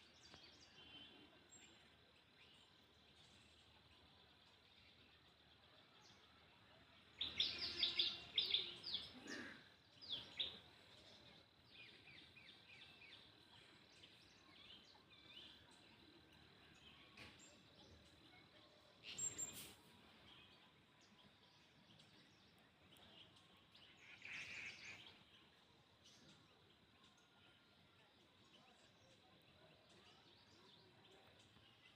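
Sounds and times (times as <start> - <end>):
birds chirping: 7.0 - 31.9.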